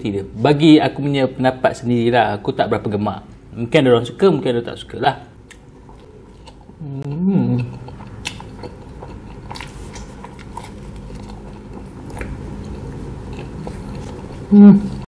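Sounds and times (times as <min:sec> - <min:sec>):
soft chewing with clicks: 0:05.4 - 0:14.5.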